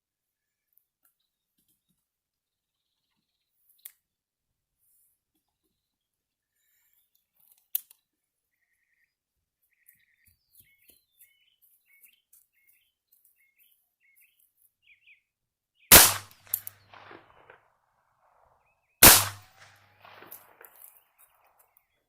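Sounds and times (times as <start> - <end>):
small birds chirping: 0.3 - 17.6
gunshots with echo: 15.9 - 17.7, 19.0 - 20.8.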